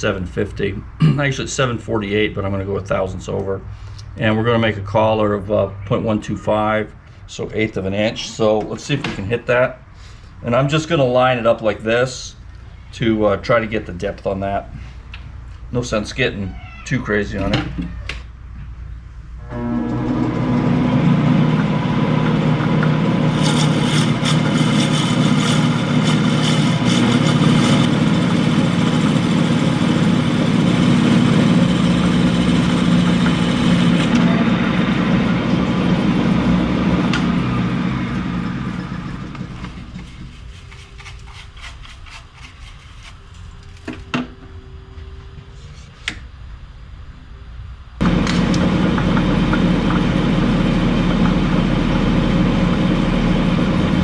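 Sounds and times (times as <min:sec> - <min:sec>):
lathe spinning down: 0:19.4 - 0:40.4, 0:48.0 - 0:54.0
metal lathe motor running: 0:19.4 - 0:40.4, 0:48.0 - 0:54.0
scratchy cutting noise: 0:23.2 - 0:35.2, 0:39.6 - 0:43.8.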